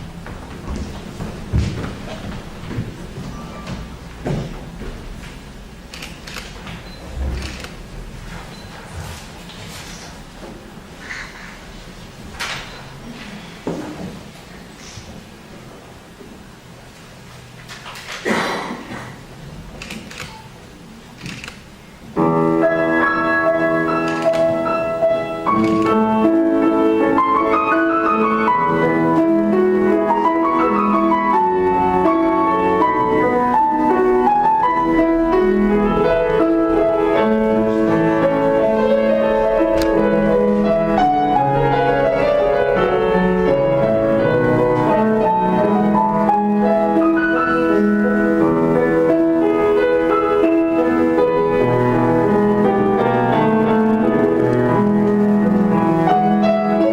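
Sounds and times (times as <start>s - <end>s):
slow solo piano piece: 22.1s - 56.9s.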